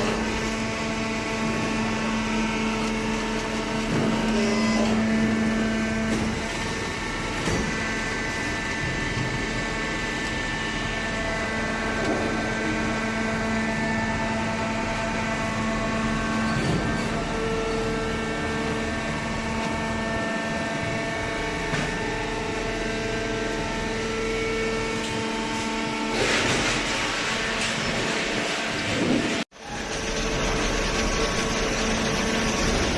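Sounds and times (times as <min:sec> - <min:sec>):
machinery humming: 0:00.0 - 0:32.9.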